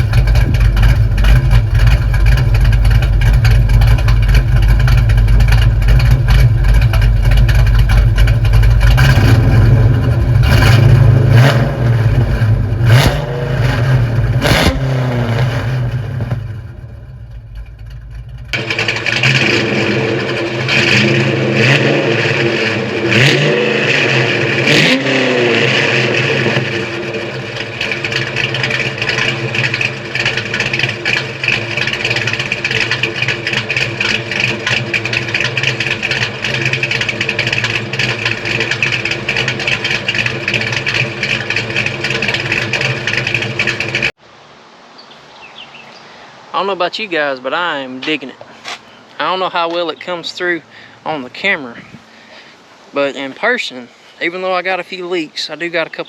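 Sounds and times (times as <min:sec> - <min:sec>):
car engine idling and revving: 0:00.0 - 0:44.2.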